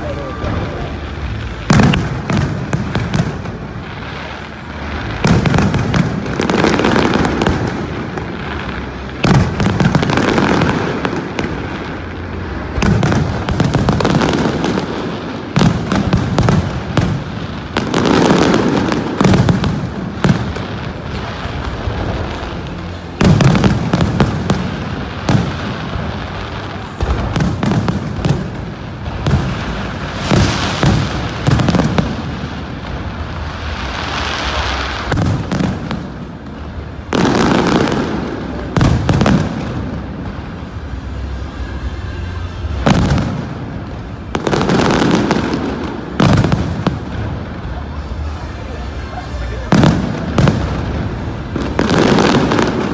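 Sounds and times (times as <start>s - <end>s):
fireworks bursting: 0.0s - 52.9s.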